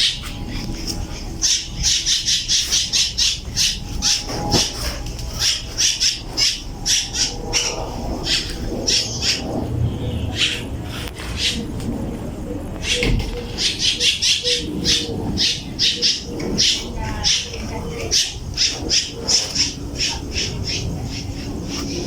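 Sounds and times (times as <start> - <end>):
low steady rumble: 0.0 - 22.0
bird chirping: 12.8 - 22.0.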